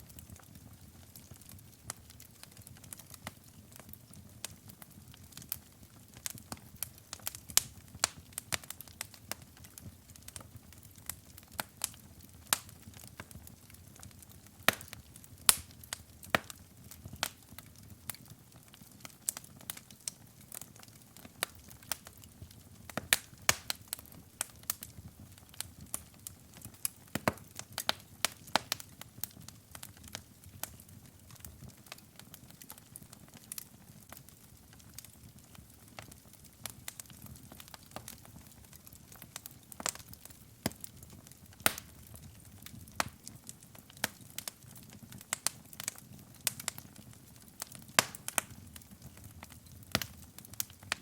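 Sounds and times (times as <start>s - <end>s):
wood fire crackling and popping: 0.0s - 51.0s.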